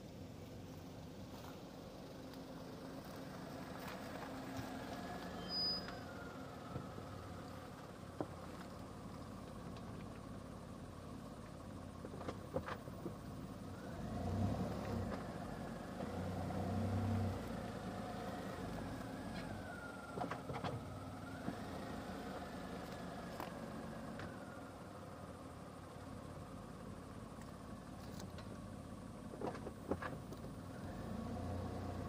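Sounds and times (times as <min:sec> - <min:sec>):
car engine revving: 0:13.8 - 0:19.5, 0:30.7 - 0:32.0.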